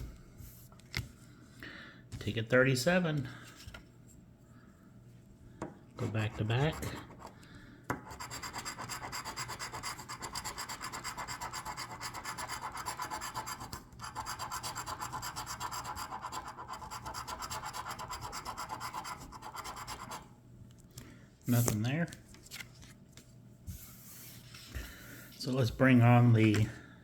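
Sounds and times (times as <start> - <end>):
lottery ticket being scratched: 8.1 - 20.3.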